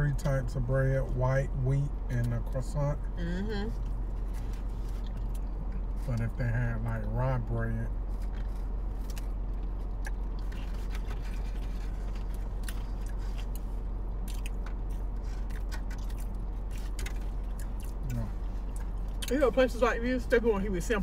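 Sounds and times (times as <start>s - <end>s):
people chewing: 8.1s - 19.3s.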